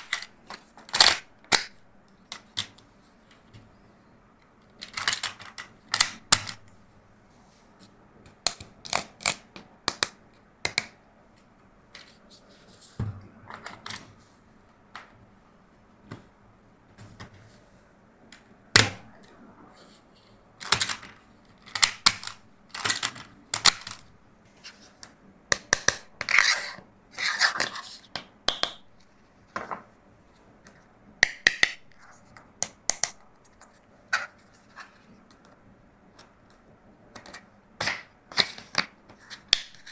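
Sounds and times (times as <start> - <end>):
plastic toys clicking and clattering: 4.7 - 6.6, 20.6 - 24.1.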